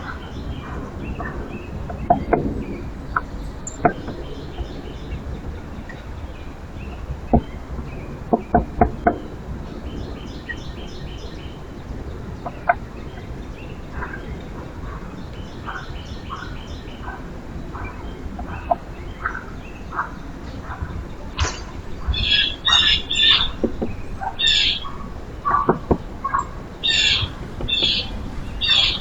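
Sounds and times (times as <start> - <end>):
sharp taps: 21.4 - 24.3
rapid high bird chattering: 21.4 - 29.0
short bird call notes: 26.8 - 29.0.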